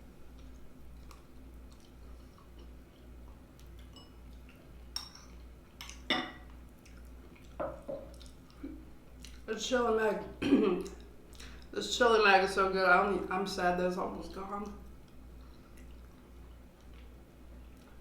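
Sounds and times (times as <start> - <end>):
low steady hum: 0.0 - 18.0
quiet chewing: 0.1 - 9.7, 10.8 - 11.8, 14.6 - 18.0.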